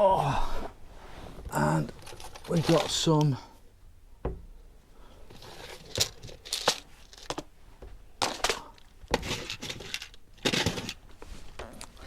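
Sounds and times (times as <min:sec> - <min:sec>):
small parts clattering: 0:01.9 - 0:03.4, 0:05.3 - 0:07.6, 0:08.2 - 0:11.1.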